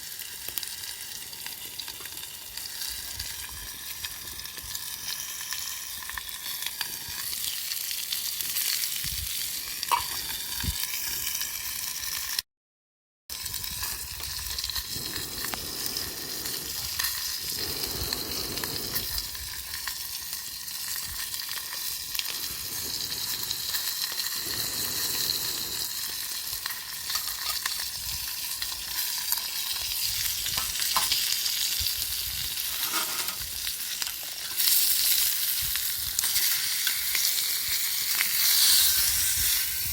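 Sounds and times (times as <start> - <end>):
food sizzling in frying: 0.0 - 12.4, 13.3 - 39.9.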